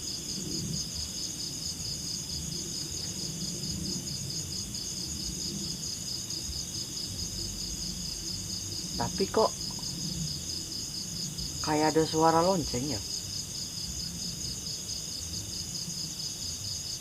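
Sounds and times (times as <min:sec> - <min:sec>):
insects trilling: 0:00.0 - 0:17.0
low rumble: 0:06.4 - 0:11.7.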